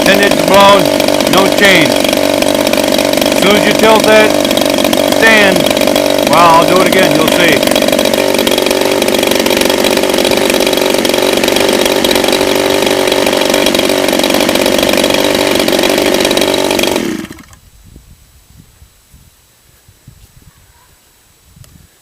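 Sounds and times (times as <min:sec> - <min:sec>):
model aircraft engine running: 0:00.0 - 0:17.7.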